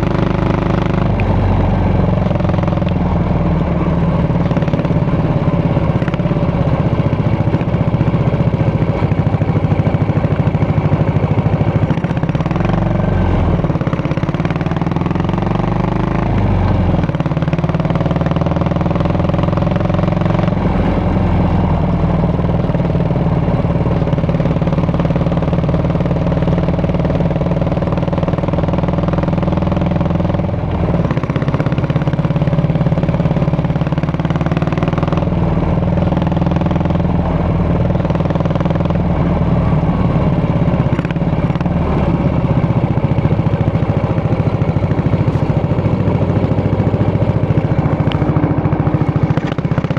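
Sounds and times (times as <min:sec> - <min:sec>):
motorcycle engine and exhaust: 0:00.0 - 0:49.9.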